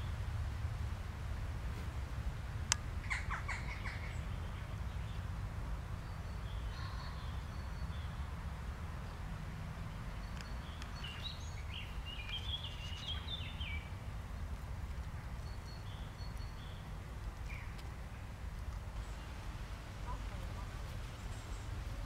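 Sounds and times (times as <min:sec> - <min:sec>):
low steady rumble: 0:00.0 - 0:22.0
small bird singing: 0:03.0 - 0:05.3, 0:05.9 - 0:08.3, 0:09.9 - 0:14.5, 0:15.1 - 0:18.3.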